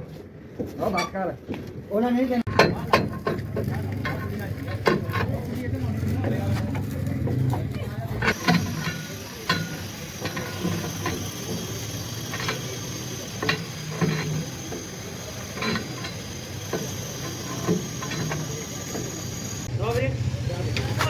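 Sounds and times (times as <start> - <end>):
metal knocks and clanks: 2.5 - 5.4, 7.3 - 19.7.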